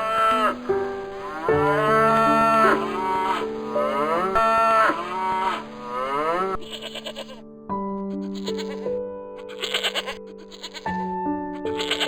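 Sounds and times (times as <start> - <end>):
cow mooing: 0.0 - 7.4
background music: 0.0 - 12.0
short pulsing bleat: 6.2 - 7.4, 8.2 - 8.8, 9.4 - 10.8, 11.7 - 12.0.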